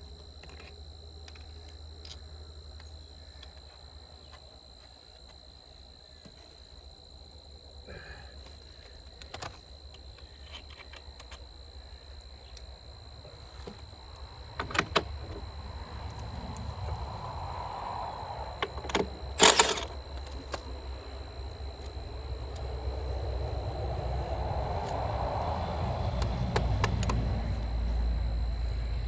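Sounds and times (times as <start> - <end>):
high-pitched insect drone: 0.0 - 29.0
low hum: 6.8 - 29.0
faint clicks and knocks: 8.4 - 11.6.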